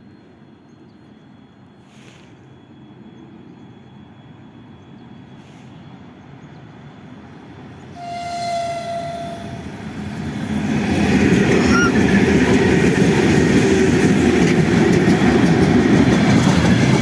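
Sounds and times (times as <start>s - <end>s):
freight train rumbling: 0.0s - 17.0s
locomotive horn blast: 7.9s - 9.8s.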